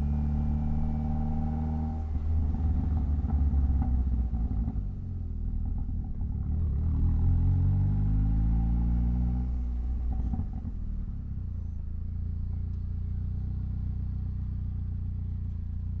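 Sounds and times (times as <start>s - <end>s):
car engine running: 0.0s - 7.1s.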